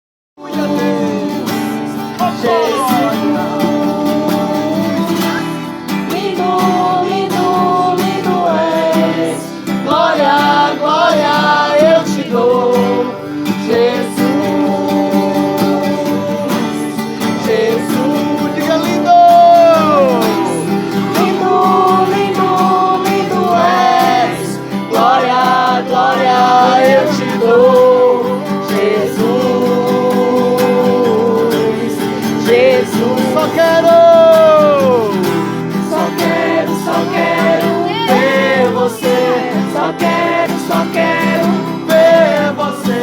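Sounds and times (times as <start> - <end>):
acoustic guitar: 0.4 - 43.0
person singing: 0.4 - 43.0.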